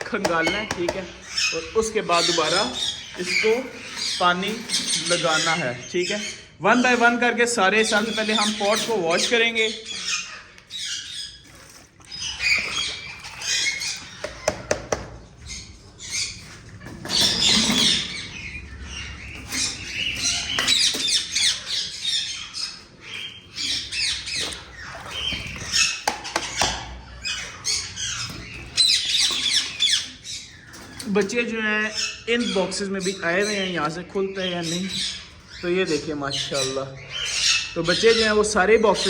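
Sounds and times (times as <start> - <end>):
sharp knocks: 0.0 - 1.1, 14.2 - 15.2
parakeets squawking: 0.0 - 39.0.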